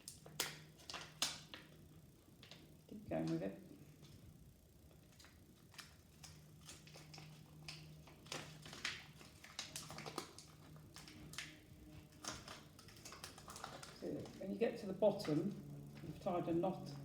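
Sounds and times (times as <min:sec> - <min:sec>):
plastic cup crackling and clicking: 0:00.0 - 0:01.8, 0:05.1 - 0:14.5
faint low hum: 0:00.0 - 0:17.0.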